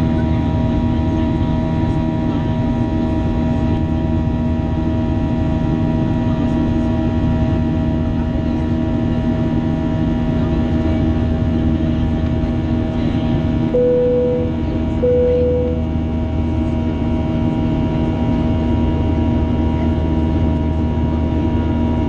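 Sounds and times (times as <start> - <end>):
jet engines droning: 13.4 - 15.8.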